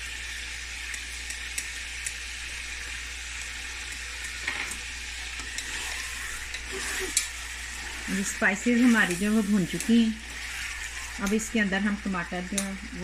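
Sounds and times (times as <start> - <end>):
food sizzling in a pot: 0.0 - 13.0
spatula scraping pan: 4.4 - 11.6.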